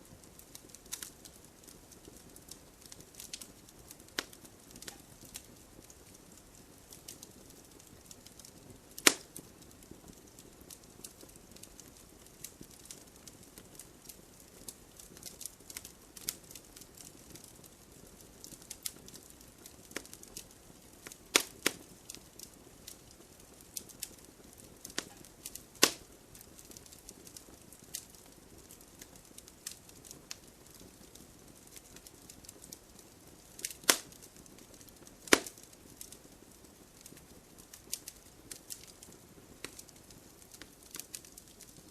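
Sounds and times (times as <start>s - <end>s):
faint low hiss: 0.0s - 41.9s
wood fire crackling: 0.0s - 41.9s
sharp loud pops: 35.3s - 35.5s.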